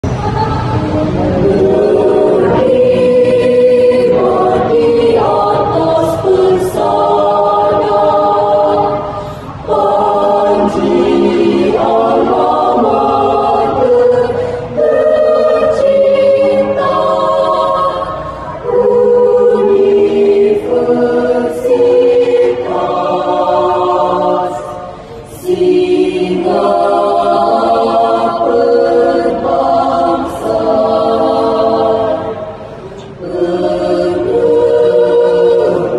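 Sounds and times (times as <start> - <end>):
choir singing: 0.0 - 35.9.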